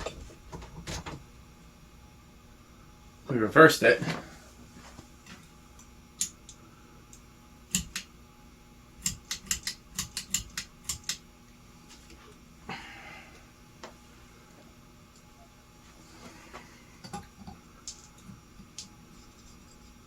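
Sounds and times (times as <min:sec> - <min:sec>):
sharp clicks of fan controls: 0:05.2 - 0:08.2, 0:09.0 - 0:11.6.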